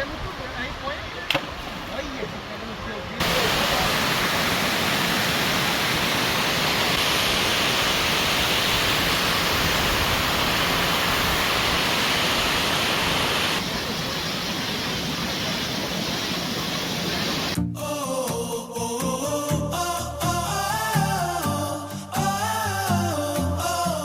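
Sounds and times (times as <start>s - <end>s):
waterfall rushing: 0.0s - 17.6s.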